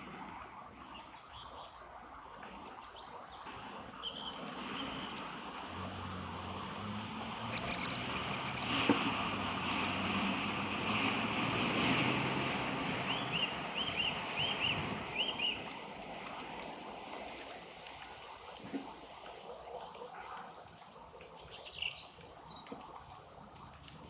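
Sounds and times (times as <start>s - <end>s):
motor vehicle passing: 4.6s - 16.5s
birds chirping: 7.3s - 10.8s, 12.9s - 16.2s.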